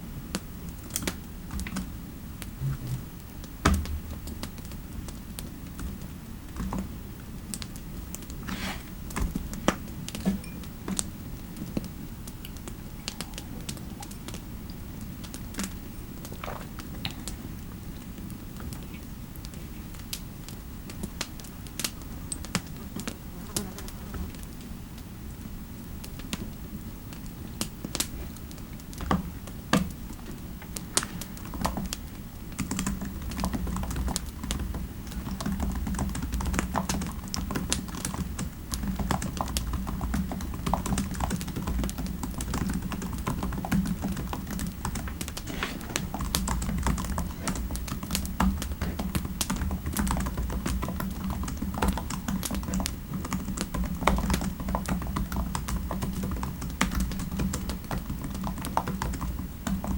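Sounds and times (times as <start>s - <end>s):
low steady rumble: 2.4s - 4.3s
computer keyboard typing: 32.6s - 59.9s.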